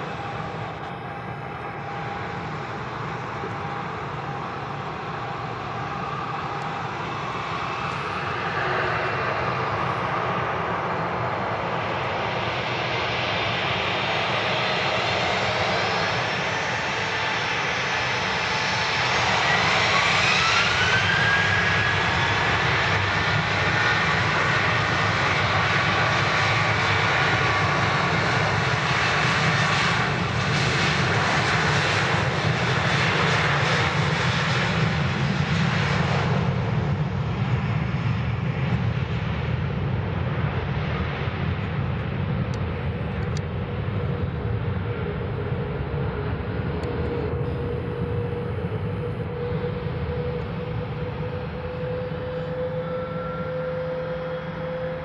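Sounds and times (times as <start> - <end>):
jet engine whine falling in pitch: 0.0 - 55.0
jet engines roaring: 0.0 - 55.0.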